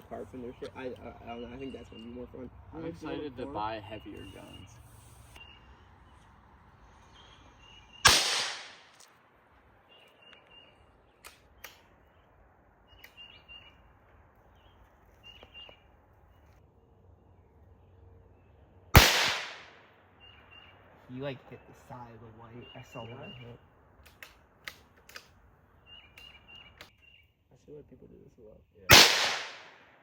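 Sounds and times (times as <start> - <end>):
faint bird chirps: 0.1 - 2.5, 3.6 - 8.1, 20.2 - 23.7, 25.8 - 28.9
gunshot: 8.0 - 9.0, 19.0 - 19.8, 28.9 - 29.9.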